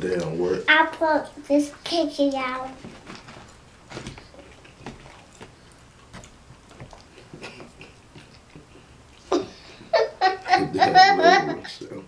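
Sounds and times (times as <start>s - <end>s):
people chewing: 2.8s - 10.8s.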